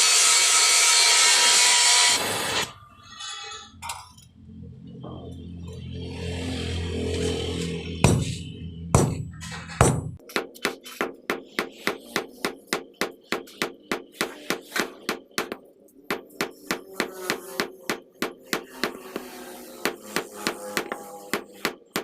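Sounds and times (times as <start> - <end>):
hammer striking metal: 8.0 - 22.0.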